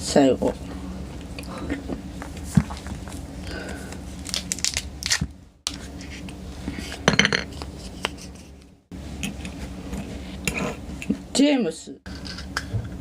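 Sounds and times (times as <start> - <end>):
foil crinkling: 4.1 - 5.2.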